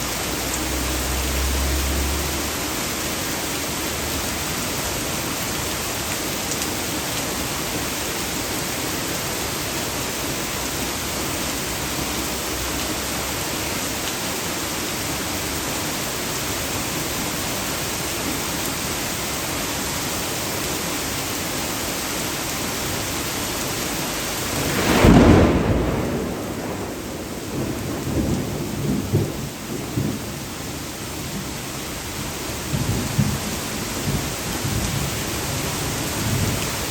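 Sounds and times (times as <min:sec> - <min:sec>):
torrential rain pouring: 0:00.0 - 0:36.9
water gushing from storm drain: 0:00.0 - 0:36.9
thunderclap with deep rumble: 0:24.4 - 0:30.6.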